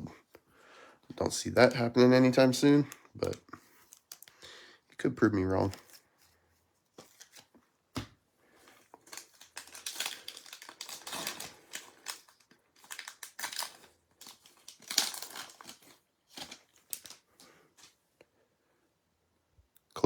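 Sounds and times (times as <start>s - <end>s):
plastic wrapper tearing and crinkling: 2.6s - 4.4s, 9.0s - 17.3s.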